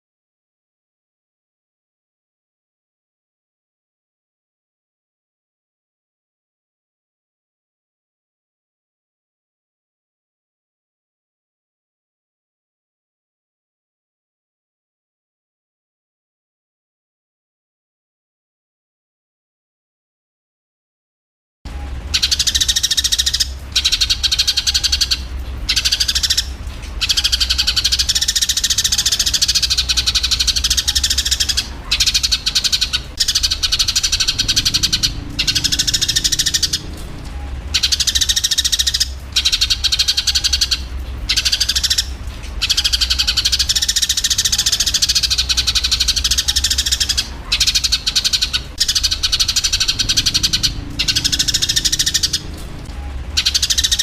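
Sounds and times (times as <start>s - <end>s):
low hum: 21.7s - 54.0s
sparrows chattering: 22.1s - 37.0s, 37.6s - 52.7s, 53.3s - 54.0s
sparrows squabbling calls: 22.1s - 37.1s, 37.7s - 54.0s.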